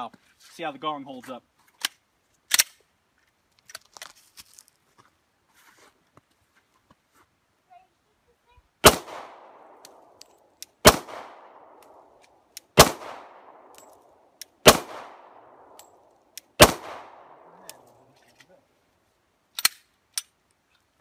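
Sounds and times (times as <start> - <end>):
pistol shots with echo: 8.8 - 10.1, 10.8 - 13.9, 14.6 - 16.0, 16.6 - 17.9.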